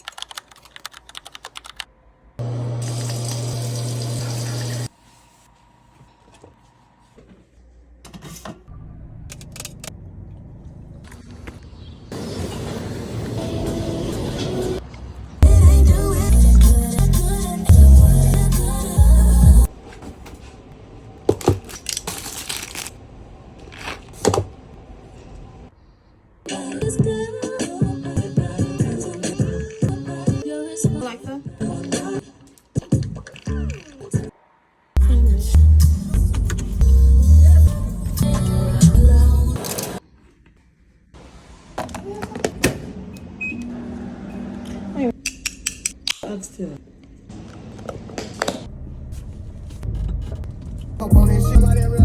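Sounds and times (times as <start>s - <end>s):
loud motor hum: 2.4s - 4.9s
music: 15.4s - 19.7s, 26.5s - 34.3s, 35.0s - 39.6s, 51.0s - 52.0s
objects being handled clicks: 45.2s - 46.3s.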